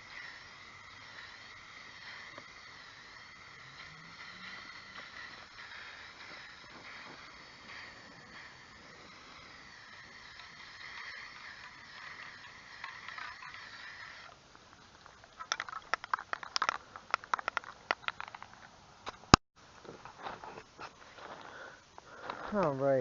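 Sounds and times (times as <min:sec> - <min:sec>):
aerosol spray hissing: 0:00.0 - 0:14.3
sharp clicks and taps: 0:15.1 - 0:19.3.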